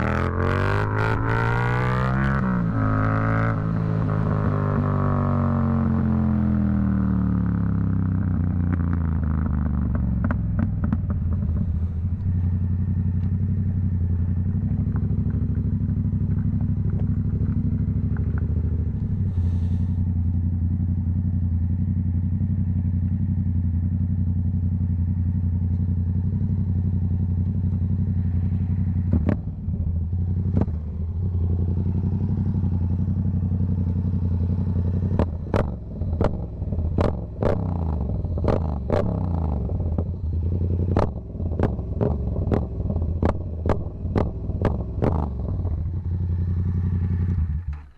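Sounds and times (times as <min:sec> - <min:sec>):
motorcycle engine rumbling: 0:00.0 - 0:47.9
exhaust crackles and pops: 0:08.2 - 0:21.2, 0:29.0 - 0:31.4, 0:33.0 - 0:47.9.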